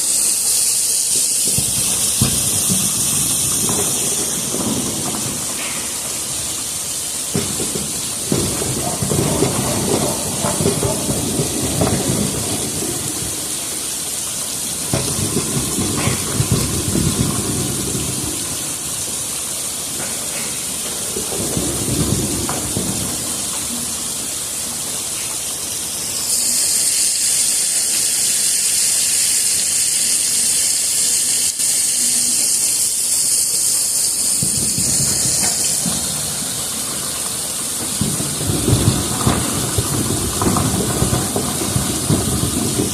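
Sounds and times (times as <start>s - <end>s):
water spraying hiss: 0.0s - 42.9s
washing machine rumble: 1.5s - 26.1s, 34.4s - 42.9s.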